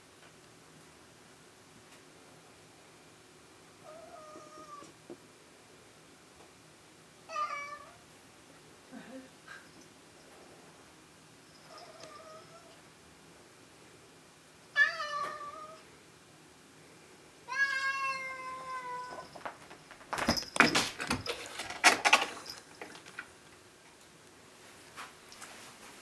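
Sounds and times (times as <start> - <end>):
cat meowing: 7.3 - 8.0, 14.8 - 15.8, 17.5 - 19.2.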